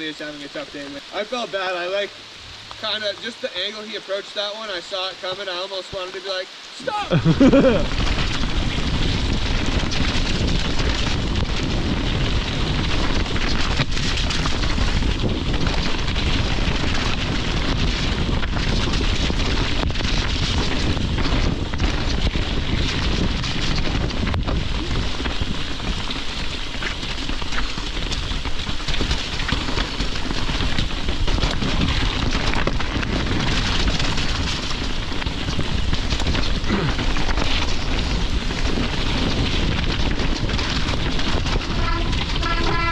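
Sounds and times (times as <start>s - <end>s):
rain and wind on microphone: 0.0s - 42.9s.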